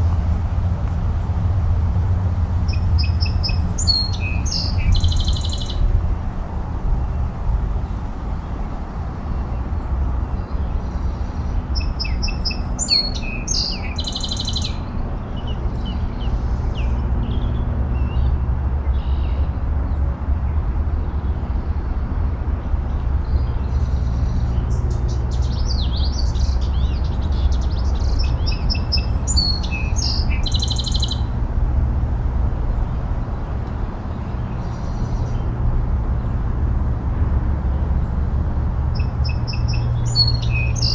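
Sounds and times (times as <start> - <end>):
songbird chirping and trilling: 2.6 - 6.0, 9.2 - 19.4, 22.9 - 31.3, 38.9 - 40.9.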